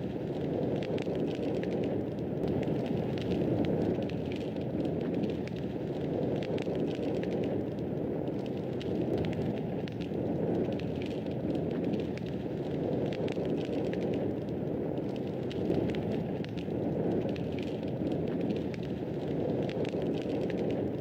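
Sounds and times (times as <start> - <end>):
fireplace fire crackling: 0.0 - 21.0.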